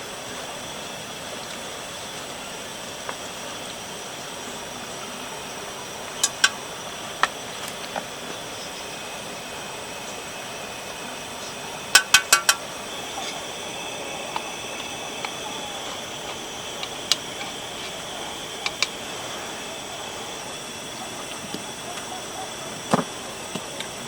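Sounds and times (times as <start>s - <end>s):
steady background hiss: 0.0s - 24.0s
camp gear clinking: 5.0s - 24.0s.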